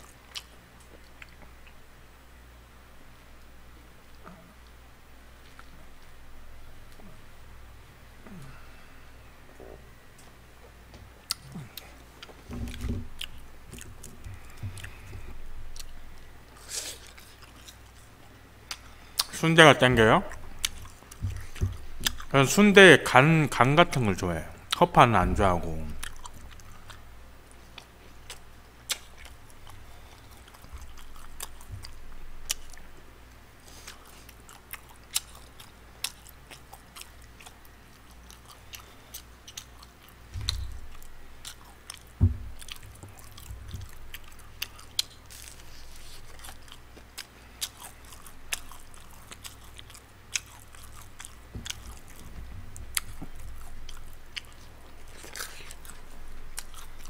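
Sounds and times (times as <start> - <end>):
chewing with crunches: 0.0 - 1.9, 5.4 - 6.2, 9.5 - 22.6, 23.5 - 57.0
low thumps: 40.3 - 41.4, 42.2 - 44.0.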